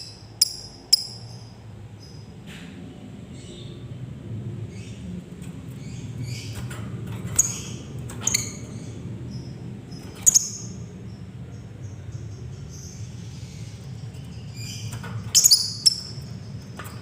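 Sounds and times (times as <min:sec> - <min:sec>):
lovebird chirping: 0:00.0 - 0:02.2, 0:09.4 - 0:11.2, 0:14.3 - 0:16.3
sharp bird calls: 0:12.8 - 0:16.6.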